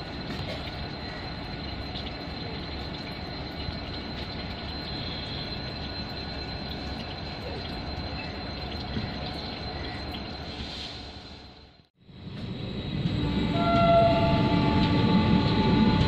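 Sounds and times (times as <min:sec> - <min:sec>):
train wheels rolling on rails: 0:12.2 - 0:16.0
thin high whine: 0:12.4 - 0:16.0.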